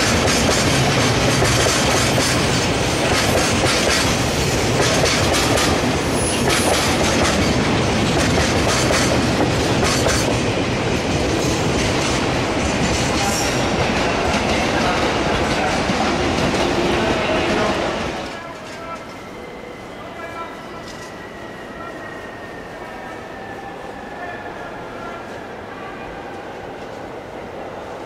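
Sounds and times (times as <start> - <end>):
freight train rolling past: 0.0 - 28.0.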